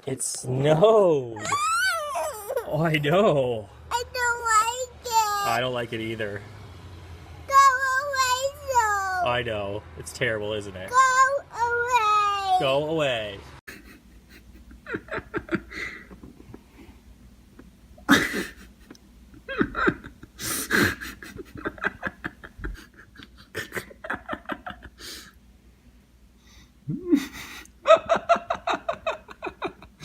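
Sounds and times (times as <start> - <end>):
person laughing: 13.7 - 16.6, 17.6 - 25.2, 26.9 - 30.0
person breathing hard: 15.7 - 17.0, 20.4 - 21.2, 25.0 - 25.4.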